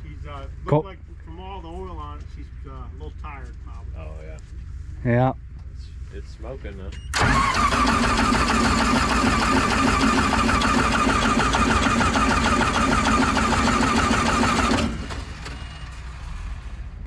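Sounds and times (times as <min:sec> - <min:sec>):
engine cranking on starter: 0:07.1 - 0:16.6.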